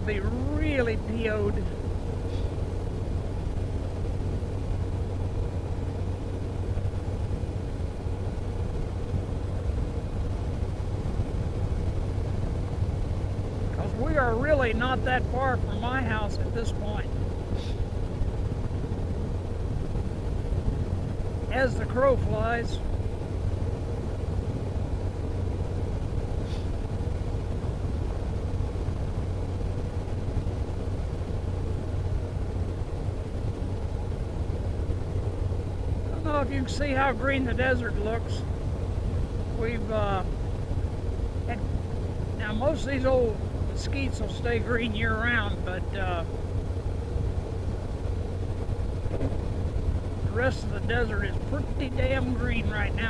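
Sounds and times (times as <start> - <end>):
car road noise: 0.0 - 53.0.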